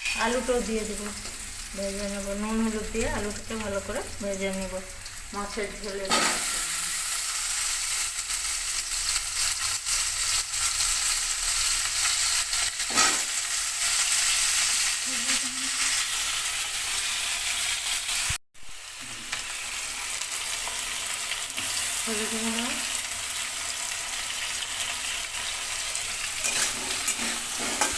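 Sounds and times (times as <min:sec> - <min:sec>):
potatoes sizzling in hot oil: 0:00.0 - 0:27.9
stirring in a pan: 0:25.0 - 0:27.9.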